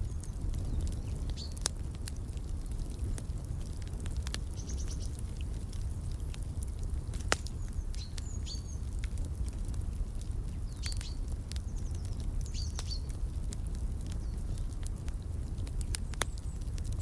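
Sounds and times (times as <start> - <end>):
small birds chirping: 0.0 - 1.7, 4.5 - 6.2, 7.2 - 9.0, 10.4 - 13.2, 14.0 - 17.0
wood fire crackling: 0.0 - 17.0.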